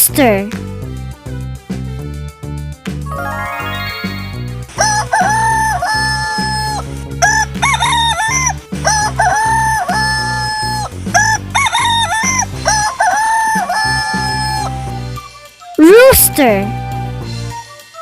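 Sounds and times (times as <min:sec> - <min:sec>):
background music with steady beat: 0:00.1 - 0:10.2
rooster crowing: 0:04.8 - 0:08.5, 0:11.6 - 0:14.7.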